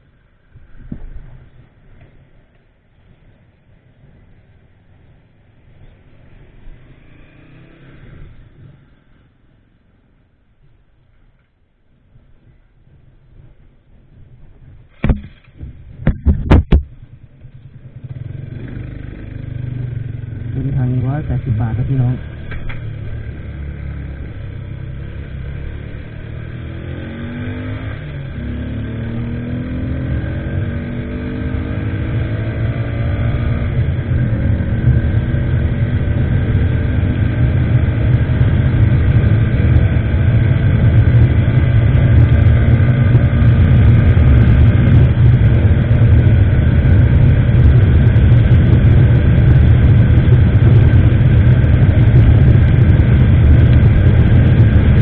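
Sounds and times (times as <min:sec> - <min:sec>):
motorcycle engine accelerating: 0:03.2 - 0:09.6, 0:12.4 - 0:55.0
wind noise on microphone: 0:12.1 - 0:17.5, 0:23.9 - 0:55.0.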